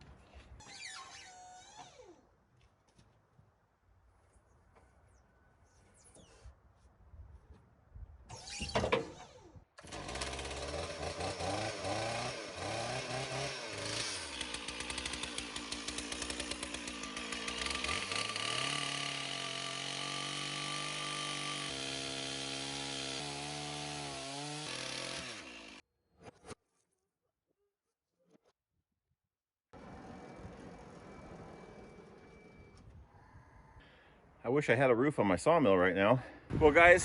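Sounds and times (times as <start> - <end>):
chainsaw cutting a log: 9.8 - 25.8.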